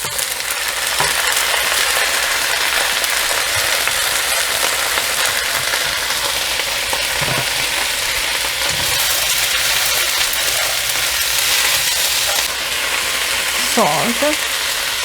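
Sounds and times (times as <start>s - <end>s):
beans sizzling in hot oil: 0.0s - 15.0s.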